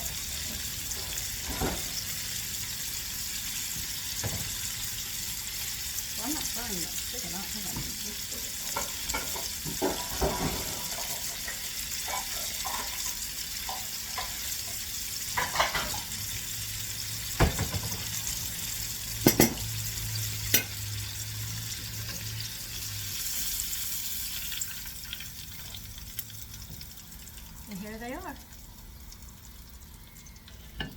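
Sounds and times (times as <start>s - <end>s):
food sizzling in hot oil: 0.0s - 30.9s.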